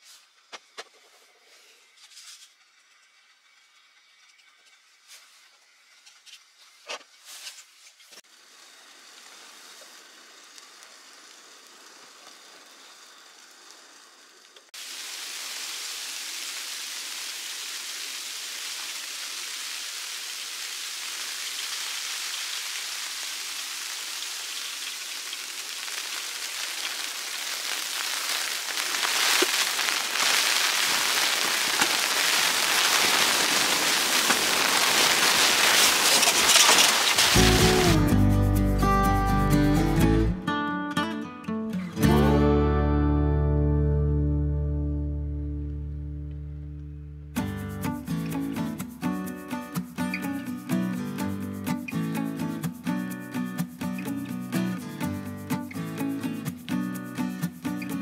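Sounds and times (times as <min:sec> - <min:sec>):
hot water poured into coffee dripper: 0:14.7 - 0:37.8.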